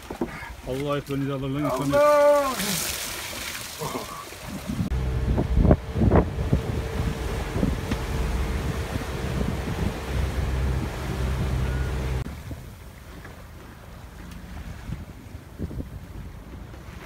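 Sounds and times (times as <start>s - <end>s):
water rushing past yacht: 1.8s - 17.0s
wind buffeting microphone: 4.5s - 17.0s
low mechanical hum: 4.9s - 12.3s.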